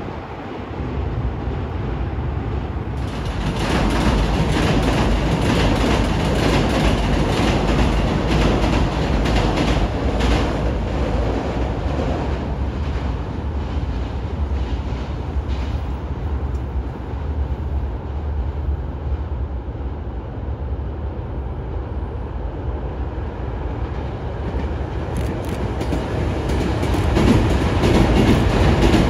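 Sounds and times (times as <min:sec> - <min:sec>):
train wheels rumbling: 0:00.0 - 0:20.0, 0:20.8 - 0:29.0
clacks from rail joints: 0:03.0 - 0:16.6, 0:24.0 - 0:29.0.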